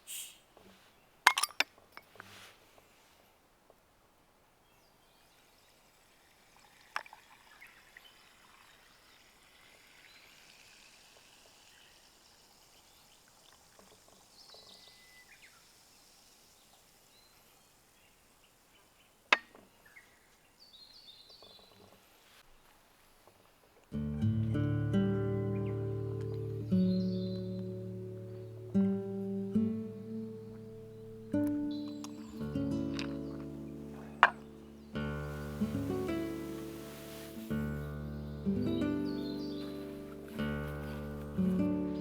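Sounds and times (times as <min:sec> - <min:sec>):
faint handling sounds: 0:00.0 - 0:03.9, 0:29.8 - 0:42.0
acoustic guitar music: 0:23.9 - 0:42.0.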